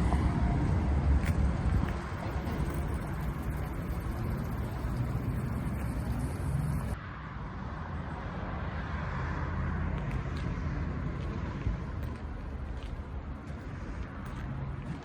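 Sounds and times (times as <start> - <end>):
diesel engine rumbling: 0.0 - 7.0
high hiss: 1.9 - 7.0.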